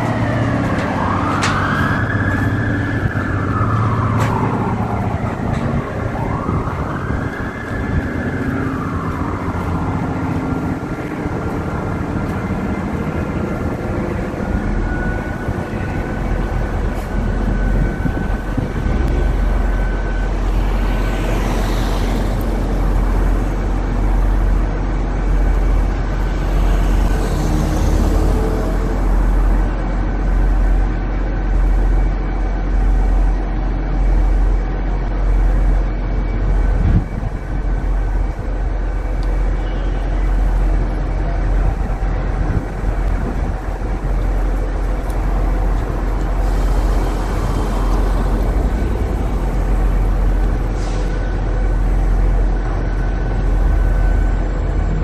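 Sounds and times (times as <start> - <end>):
city traffic: 0.0 - 55.0
siren wailing: 0.0 - 55.0
deep steady rumble: 27.9 - 55.0.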